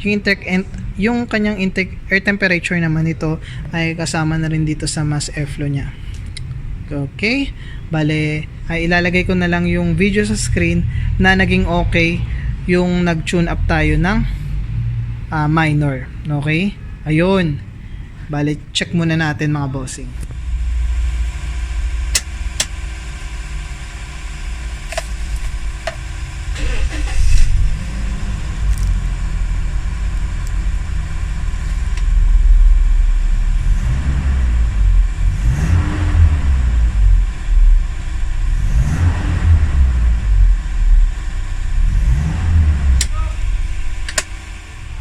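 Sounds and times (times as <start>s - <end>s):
car engine revving: 0.0s - 45.0s
sharp clicks: 22.1s - 22.8s, 44.0s - 44.4s.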